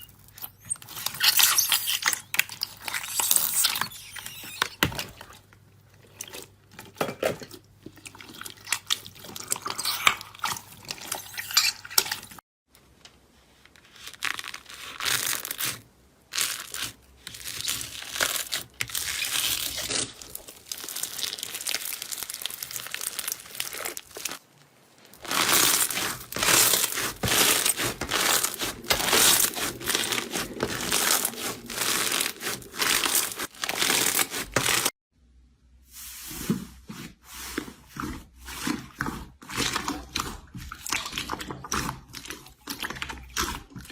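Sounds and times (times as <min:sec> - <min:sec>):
slime crackling and popping: 0:14.0 - 0:24.4, 0:25.0 - 0:34.9.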